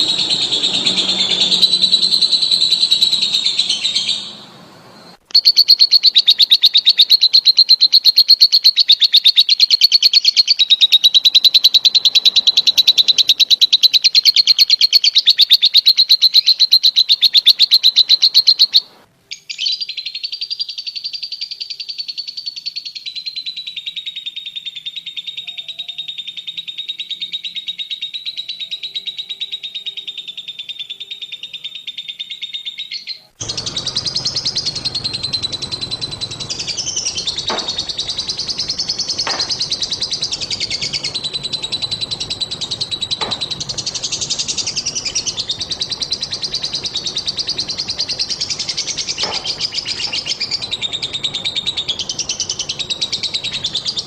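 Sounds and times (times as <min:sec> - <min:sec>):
bird high-pitched trill: 0:00.0 - 0:54.0.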